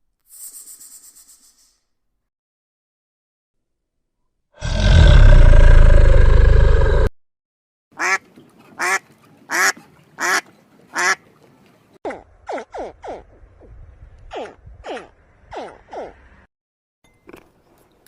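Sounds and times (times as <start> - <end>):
duck quacking: 8.0 - 11.2.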